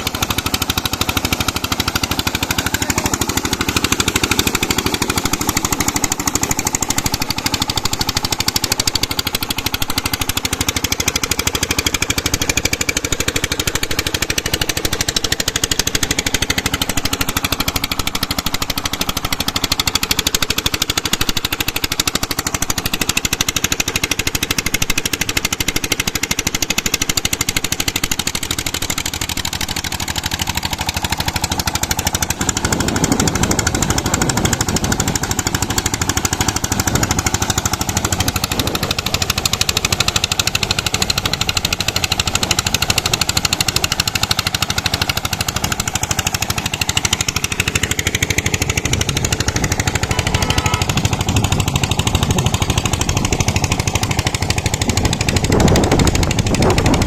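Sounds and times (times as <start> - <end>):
pump engine pulsing: 0.0 - 57.0.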